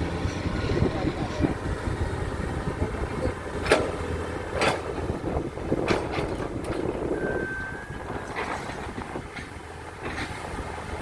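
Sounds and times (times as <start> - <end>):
diesel machinery rumbling: 0.0 - 11.0
high beep: 7.2 - 8.0.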